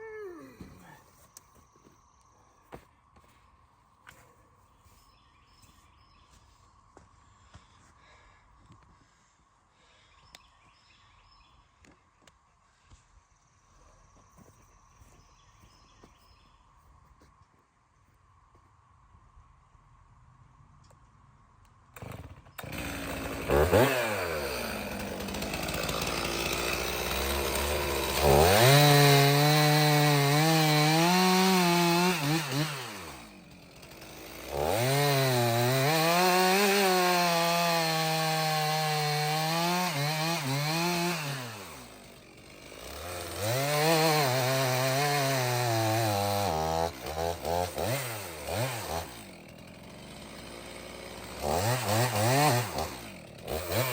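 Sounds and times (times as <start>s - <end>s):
chainsaw engine cutting wood: 22.0s - 53.9s.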